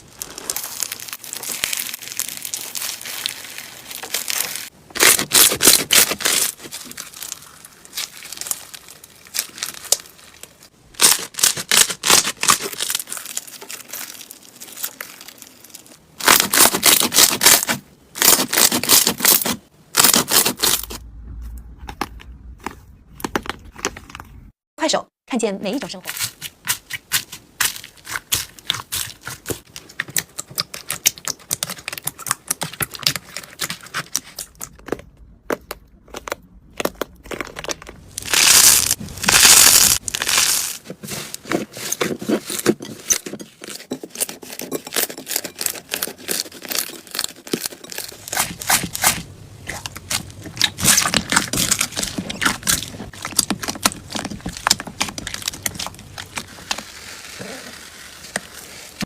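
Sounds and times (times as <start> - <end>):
slime crackling and popping: 0.0 - 20.9, 35.6 - 41.5, 45.0 - 59.0.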